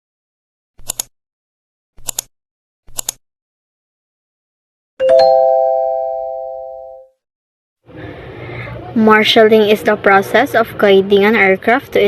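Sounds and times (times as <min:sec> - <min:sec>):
short sharp clicks: 0:00.8 - 0:01.1, 0:02.0 - 0:02.3, 0:02.9 - 0:03.2
electronic three-note chime: 0:05.0 - 0:07.1.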